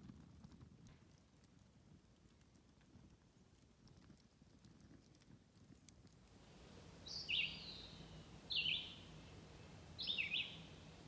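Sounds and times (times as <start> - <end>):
bird chirping: 7.0 - 11.0.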